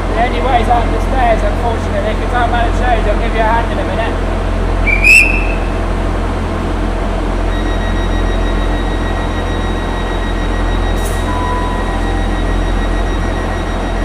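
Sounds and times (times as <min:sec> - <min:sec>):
train running rumble: 0:00.0 - 0:14.0
short beep: 0:04.9 - 0:05.7.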